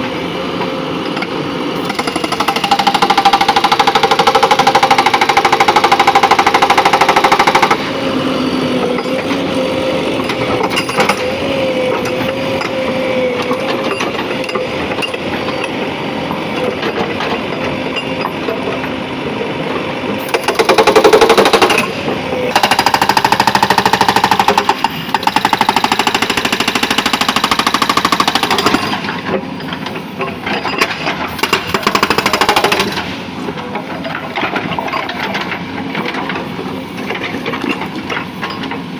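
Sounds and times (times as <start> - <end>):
diesel engine running: 0.0 - 27.5
hydraulic rock breaker hammering: 0.0 - 38.9.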